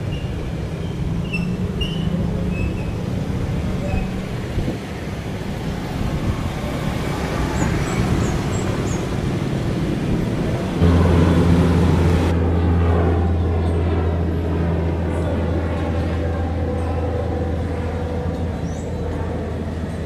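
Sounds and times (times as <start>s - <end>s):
turboprop engine drone: 0.0s - 20.0s
low hum: 9.0s - 20.0s.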